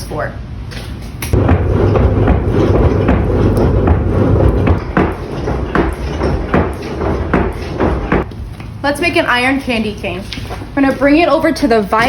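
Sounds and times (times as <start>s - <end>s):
bellows knocking: 1.4s - 8.3s.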